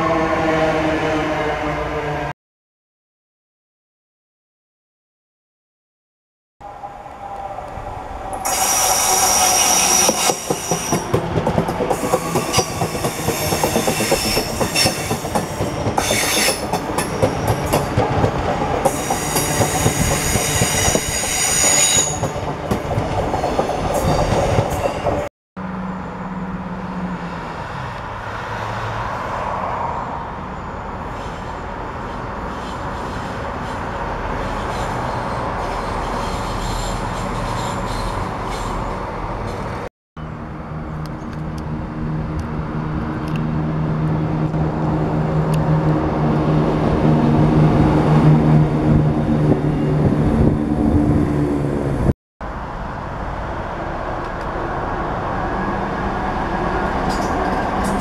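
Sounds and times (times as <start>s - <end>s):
high wheel squeal: 6.6s - 11.2s, 11.9s - 17.8s, 18.9s - 22.4s, 30.0s - 39.7s
diesel train humming past: 6.6s - 58.0s
train wheels on rails: 7.0s - 25.3s, 53.3s - 58.0s
rail-joint clicks: 7.3s - 21.4s, 57.0s - 58.0s.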